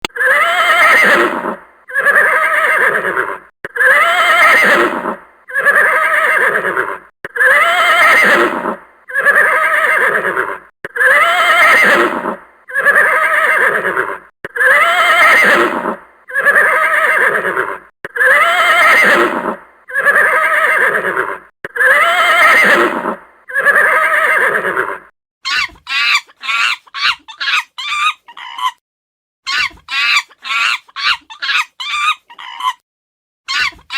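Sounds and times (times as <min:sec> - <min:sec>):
horse whinnying: 0:00.0 - 0:26.8.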